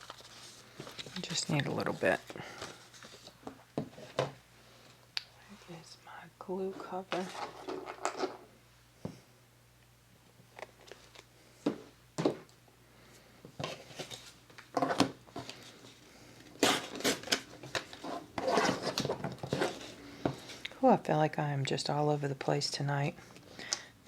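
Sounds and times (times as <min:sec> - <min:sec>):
paper rustling: 0:00.0 - 0:03.4.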